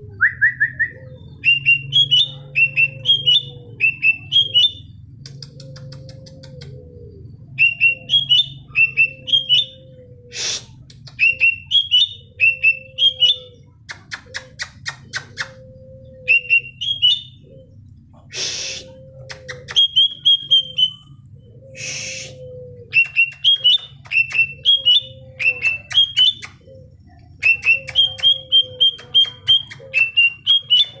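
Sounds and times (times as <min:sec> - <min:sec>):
bird chirping and whistling: 0:00.2 - 0:04.9, 0:07.5 - 0:17.6, 0:18.3 - 0:26.8, 0:27.4 - 0:31.0.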